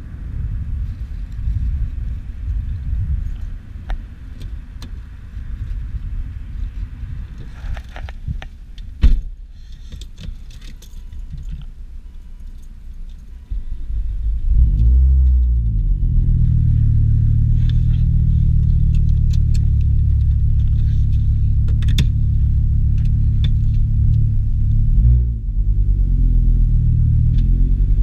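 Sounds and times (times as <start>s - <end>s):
car engine idling and revving: 0.0s - 28.0s
clicks and rattles in cabin: 7.8s - 11.7s.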